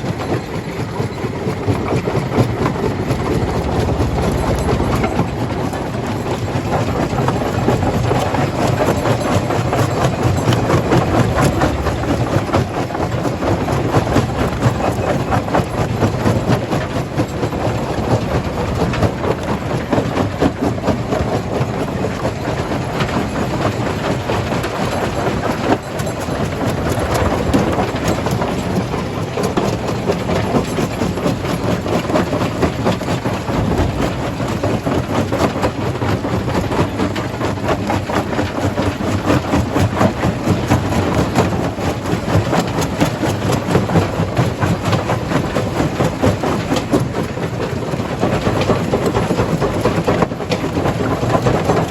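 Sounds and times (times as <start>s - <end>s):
heavy drone of machine drive: 0.0s - 21.8s, 24.2s - 39.3s.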